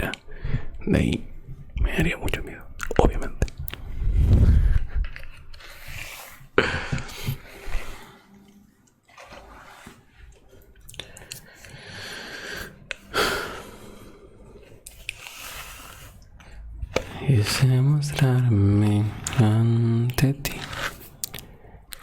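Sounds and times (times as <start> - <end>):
close breathing: 0.2 - 0.8, 3.8 - 8.4, 9.9 - 17.6.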